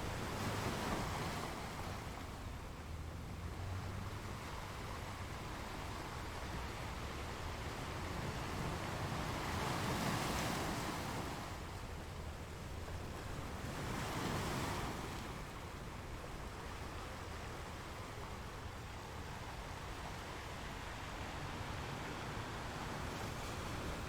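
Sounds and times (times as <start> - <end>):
ocean waves breaking: 0.0 - 24.0
steady rush of surf: 12.8 - 24.0.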